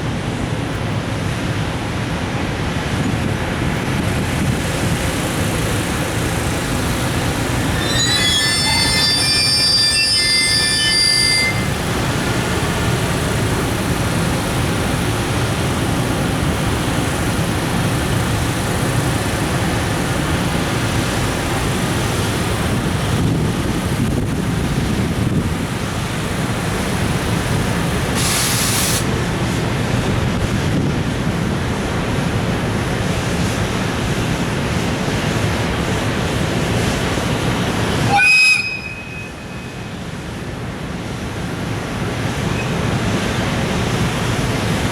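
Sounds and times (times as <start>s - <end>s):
freight train wheels rumbling: 0.0s - 44.9s
high hiss: 5.3s - 14.2s, 28.1s - 29.1s.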